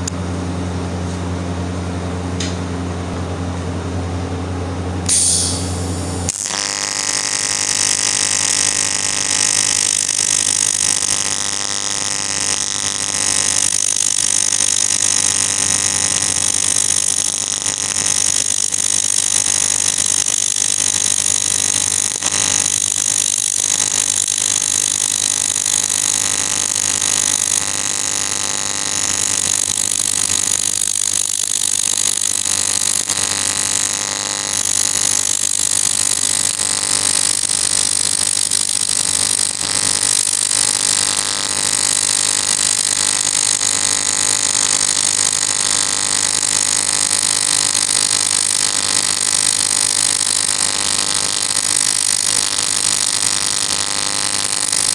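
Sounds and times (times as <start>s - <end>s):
welding arc buzzing and hissing: 5.0s - 54.9s.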